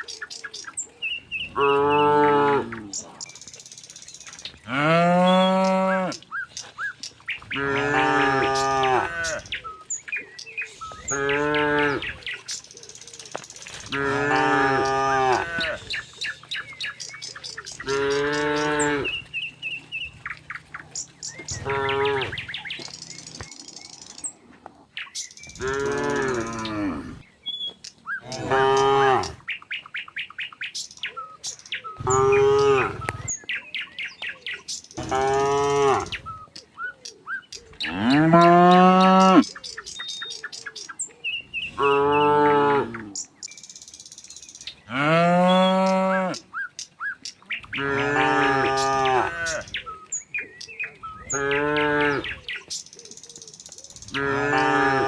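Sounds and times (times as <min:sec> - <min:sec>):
cattle mooing: 0:01.5 - 0:03.0, 0:04.7 - 0:06.2, 0:07.5 - 0:09.6, 0:10.8 - 0:12.2, 0:13.8 - 0:16.3, 0:17.3 - 0:22.6, 0:25.6 - 0:27.2, 0:28.3 - 0:29.4, 0:32.0 - 0:33.2, 0:35.0 - 0:36.2, 0:37.8 - 0:39.5, 0:41.8 - 0:43.1, 0:47.7 - 0:49.8, 0:51.3 - 0:52.4, 0:54.1 - 0:55.0.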